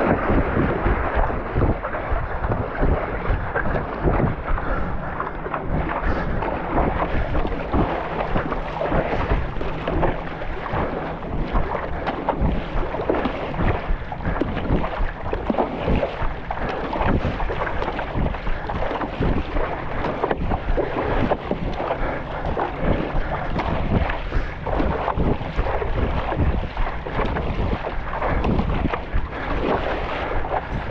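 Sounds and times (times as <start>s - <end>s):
constant low rumble: 0.0s - 30.9s
water splashing and sloshing: 0.0s - 30.9s
wind buffeting microphone: 0.0s - 30.9s.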